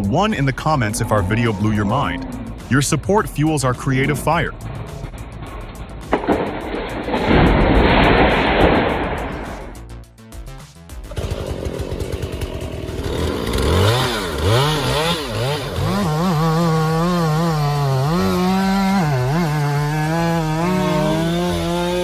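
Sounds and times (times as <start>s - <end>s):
chainsaw engine revving: 11.1s - 22.0s.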